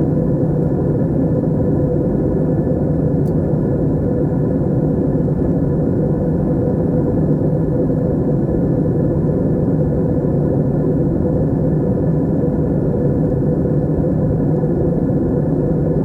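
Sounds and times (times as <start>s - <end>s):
airplane engines rumbling: 0.0s - 16.0s.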